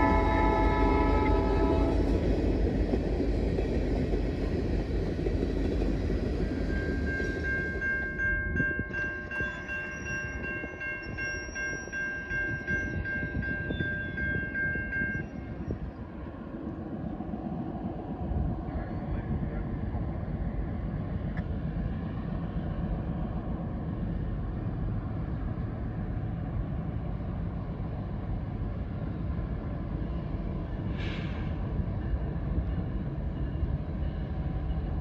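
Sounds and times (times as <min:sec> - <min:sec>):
locomotive air horn: 0:00.0 - 0:02.1
train rumbling past: 0:00.0 - 0:35.0.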